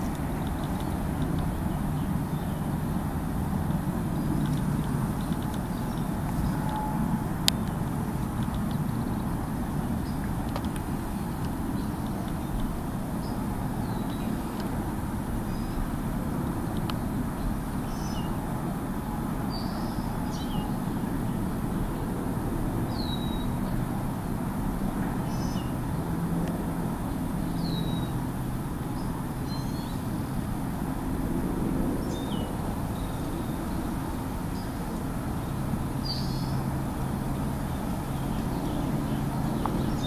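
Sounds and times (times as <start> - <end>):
small birds chirping: 0.0 - 16.0, 16.8 - 22.0, 25.2 - 25.9, 32.0 - 40.0
low background rumble: 0.0 - 40.0.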